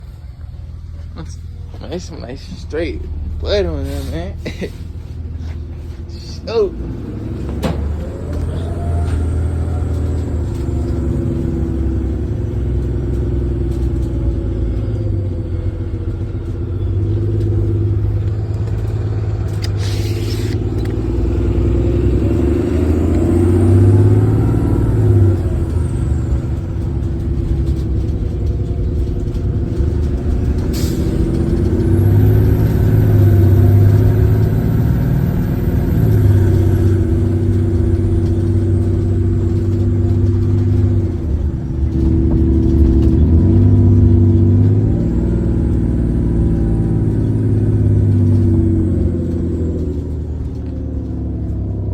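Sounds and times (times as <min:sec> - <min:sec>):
bus diesel engine running: 0:00.0 - 0:51.9
short sharp hisses: 0:19.6 - 0:20.7.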